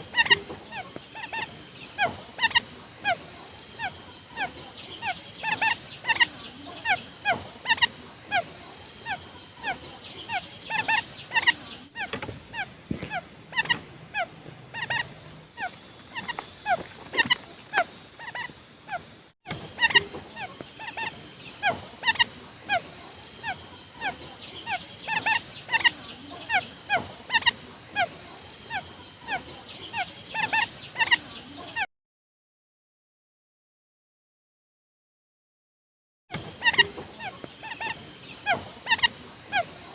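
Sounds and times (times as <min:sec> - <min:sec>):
faint high hiss: 0:00.0 - 0:31.6
quail calling: 0:00.0 - 0:31.9, 0:36.4 - 0:39.9.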